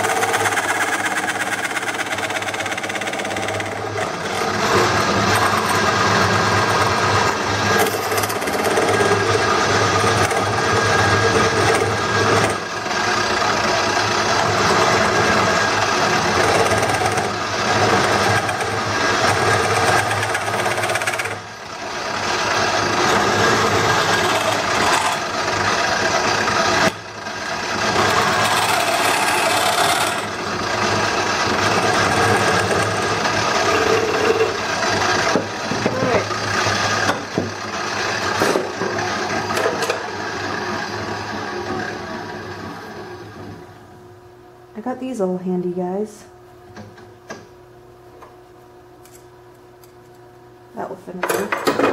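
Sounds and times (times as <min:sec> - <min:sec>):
tool scraping wood: 0:00.0 - 0:21.5, 0:22.1 - 0:27.0, 0:27.6 - 0:40.0
lathe motor hum: 0:00.0 - 0:43.9.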